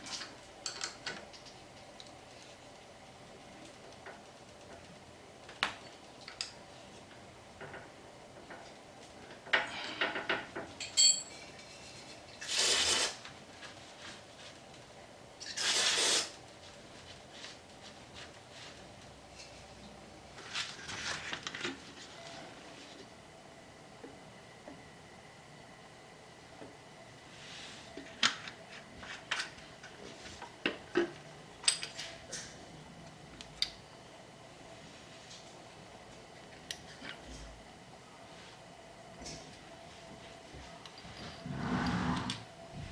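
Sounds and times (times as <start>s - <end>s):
metallic ring: 10.8s - 11.5s
metal tools clinking: 10.8s - 11.6s
short hissing sprays: 12.4s - 13.2s, 15.6s - 16.3s.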